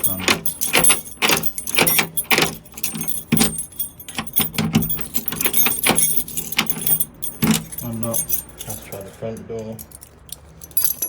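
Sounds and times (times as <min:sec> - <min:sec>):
door lock clicking: 0:00.0 - 0:08.4
keys jangling: 0:00.0 - 0:11.0.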